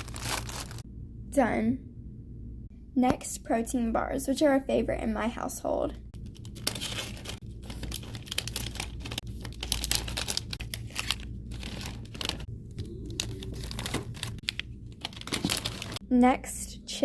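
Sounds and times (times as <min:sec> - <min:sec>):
plastic wrappers crinkling: 0:00.0 - 0:00.8, 0:06.2 - 0:16.0.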